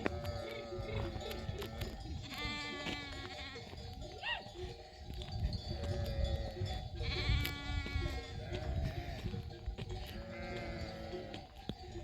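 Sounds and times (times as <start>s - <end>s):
sheep bleating: 0.0s - 4.5s, 5.7s - 9.3s, 10.1s - 11.5s
sheep bells ringing: 0.0s - 12.0s.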